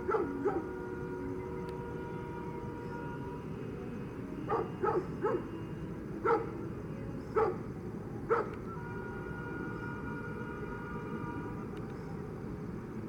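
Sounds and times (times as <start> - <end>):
dog barking: 0.0 - 0.7, 4.5 - 5.6, 6.2 - 6.6, 7.4 - 7.6, 8.3 - 8.6.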